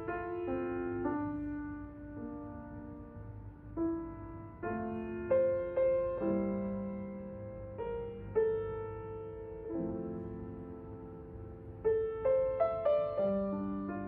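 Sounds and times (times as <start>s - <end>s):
slow solo piano music: 0.0s - 14.0s.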